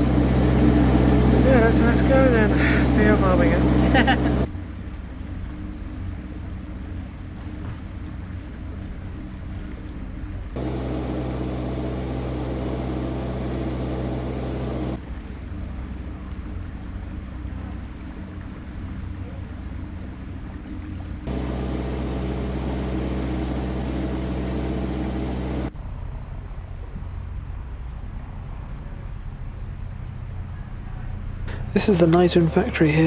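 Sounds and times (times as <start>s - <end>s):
boat engine humming: 0.0s - 4.5s, 9.6s - 25.7s, 31.5s - 33.0s.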